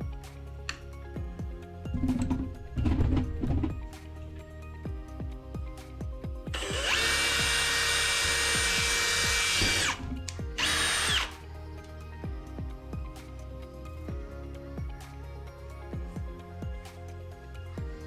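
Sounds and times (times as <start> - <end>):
faint background music: 0.0 - 18.0
power drill whining: 1.9 - 4.7, 6.5 - 11.6.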